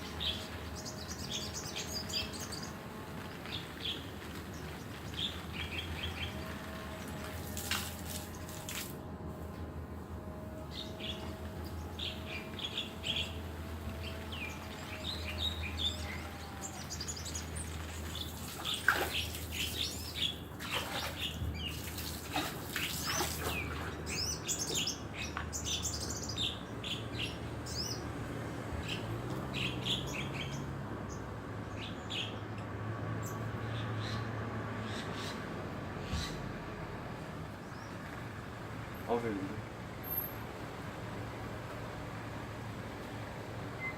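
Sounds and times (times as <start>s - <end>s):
wing-flapping and splashing: 0.0s - 9.0s, 16.9s - 24.3s.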